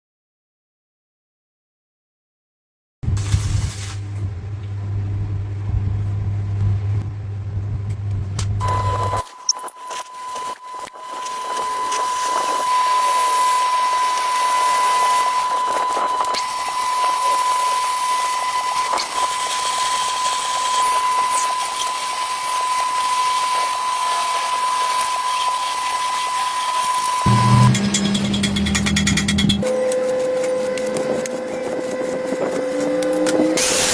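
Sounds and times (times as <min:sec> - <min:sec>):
power tool high whine: 0:08.6 - 0:33.9
knocks and clicks: 0:27.3 - 0:29.7.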